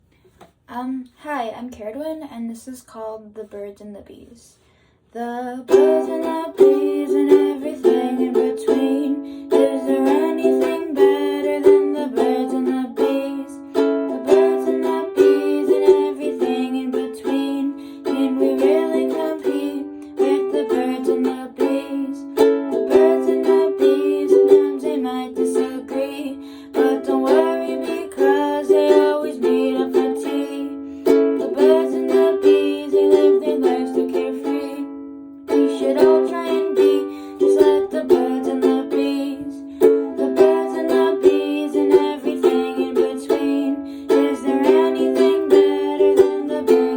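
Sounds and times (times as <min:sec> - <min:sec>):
ukulele playing: 0:05.7 - 0:46.9.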